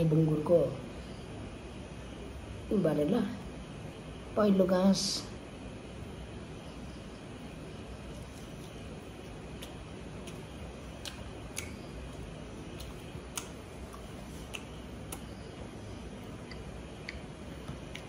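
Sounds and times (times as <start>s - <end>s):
low background hiss: 0.0s - 18.0s
mouth clicks and smacks chewing: 8.2s - 15.4s, 16.2s - 18.0s.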